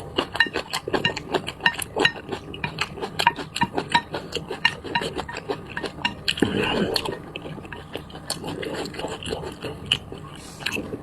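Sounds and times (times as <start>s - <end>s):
utensils clinking against bowl: 0.2s - 10.0s.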